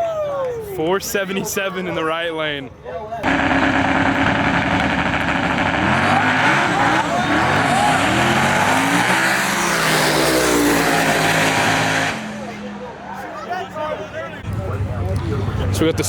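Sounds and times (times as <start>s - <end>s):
drag racing car engines revving: 3.2s - 16.0s.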